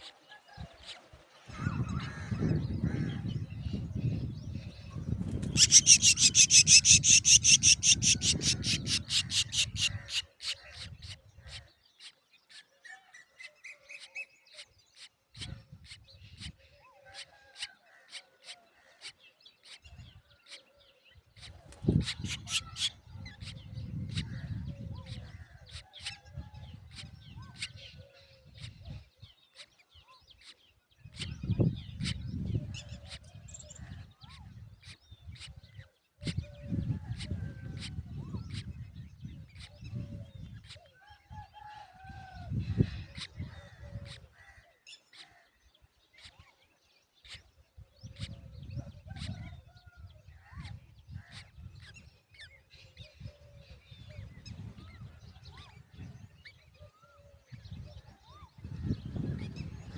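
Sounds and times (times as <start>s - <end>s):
nestlings chirping: 5.3s - 10.0s.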